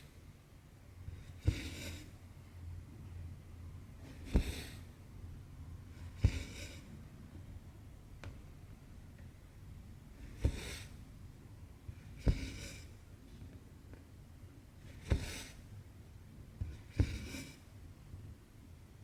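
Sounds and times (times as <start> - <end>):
thread rasping through fabric: 1.3 - 2.1, 5.9 - 6.9.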